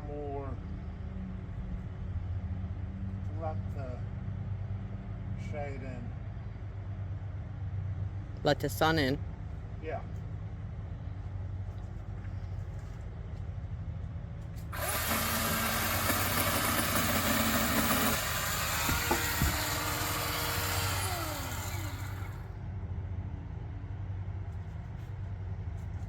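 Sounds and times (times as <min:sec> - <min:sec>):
chainsaw cutting wood: 0:14.8 - 0:22.5.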